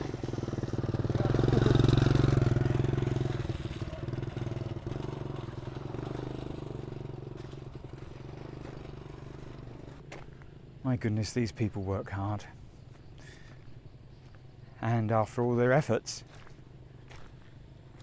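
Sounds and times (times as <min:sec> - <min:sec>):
small motorcycle passing by: 0:00.0 - 0:10.8.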